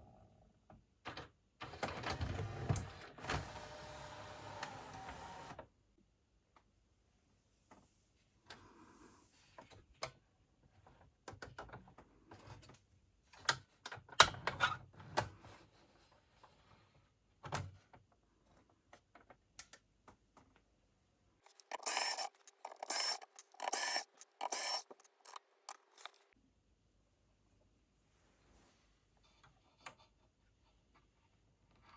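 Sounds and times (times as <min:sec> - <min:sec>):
mechanical clicks and scrapes: 0:21.5 - 0:26.2
short hissing bursts: 0:21.6 - 0:25.4.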